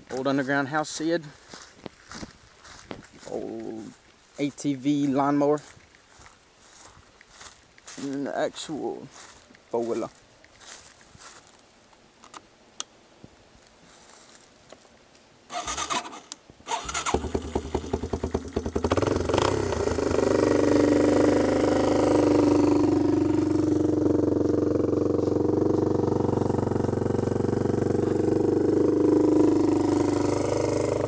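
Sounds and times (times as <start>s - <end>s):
engine cranking: 15.5s - 31.0s
engine running and idling: 16.8s - 31.0s.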